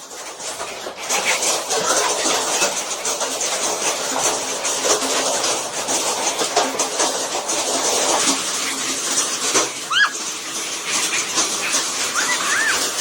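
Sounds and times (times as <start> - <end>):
hail pelting down: 0.0 - 13.0.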